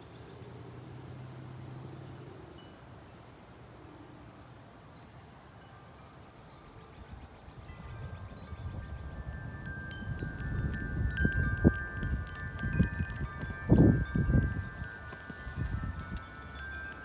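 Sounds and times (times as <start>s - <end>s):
wind chimes ringing: 4.9s - 17.0s
wind buffeting microphone: 6.6s - 17.0s.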